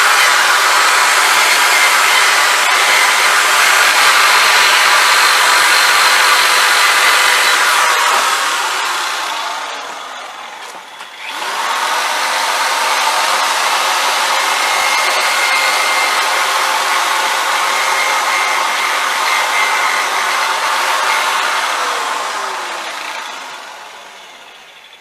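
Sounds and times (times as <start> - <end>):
electric drill motor whine: 0.0 - 24.9
wire brush scratching metal: 14.2 - 21.8.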